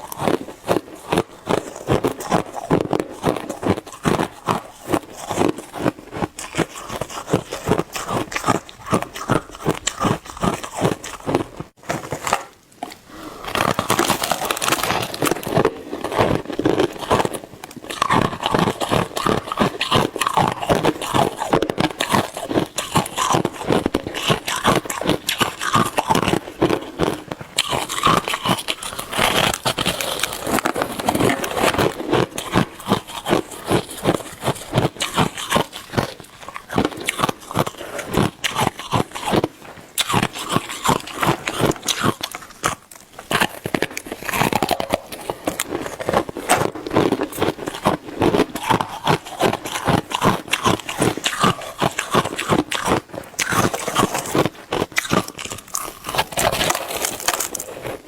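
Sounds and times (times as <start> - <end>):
ice crunching in chewing: 0.0 - 58.0.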